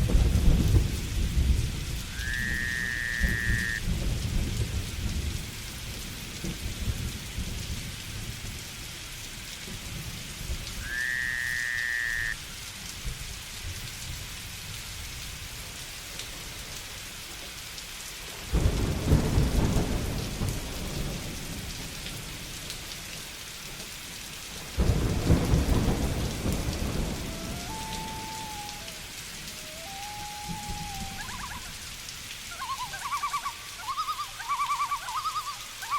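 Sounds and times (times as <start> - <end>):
thunder rumbling: 0.0 - 5.4, 18.5 - 22.2, 24.6 - 32.0
thunderclaps: 0.0 - 5.4, 18.5 - 22.3, 24.6 - 31.7
rain hissing: 0.0 - 35.9
whistled calls: 27.2 - 31.9, 32.5 - 35.9.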